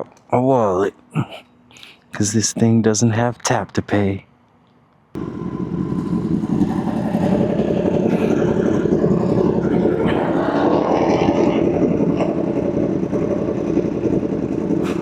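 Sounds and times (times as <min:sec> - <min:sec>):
motorcycle engine running: 0:05.2 - 0:15.0.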